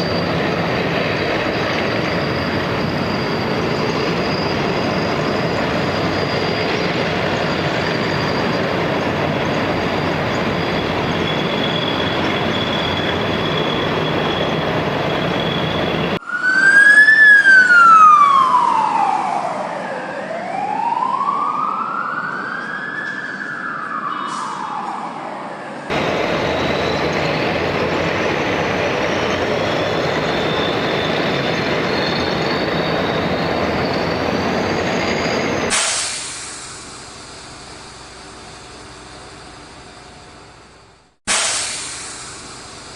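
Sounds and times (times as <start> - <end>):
siren wailing: 1.4 - 35.7.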